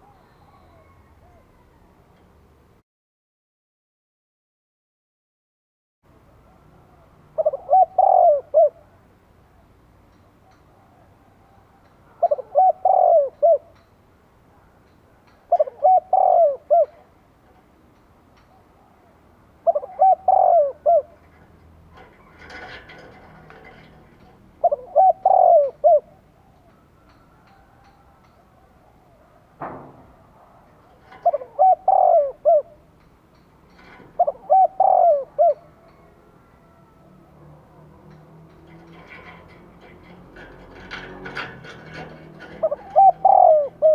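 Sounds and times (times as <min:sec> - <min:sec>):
dove cooing: 0:00.0 - 0:01.9, 0:06.8 - 0:09.0, 0:10.4 - 0:13.8, 0:15.5 - 0:17.2, 0:18.4 - 0:21.4, 0:22.0 - 0:29.4, 0:30.3 - 0:32.9, 0:33.7 - 0:37.8, 0:38.8 - 0:43.9.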